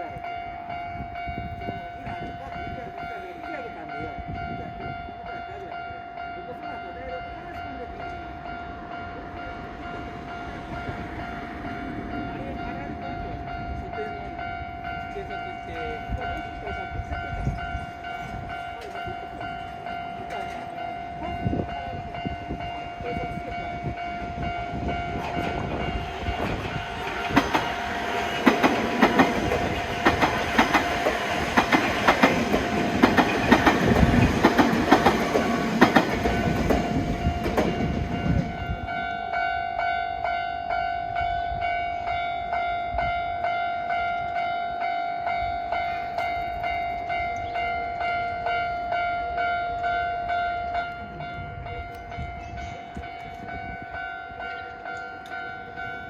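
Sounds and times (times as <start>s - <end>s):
crossing warning bell ringing: 0.0s - 56.0s
train wheels clacking over joints: 25.1s - 38.6s.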